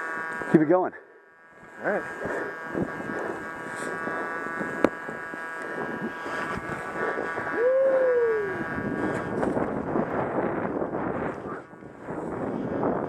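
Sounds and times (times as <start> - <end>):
thin steady whine: 0.0 - 13.0
person hooting: 7.5 - 8.6.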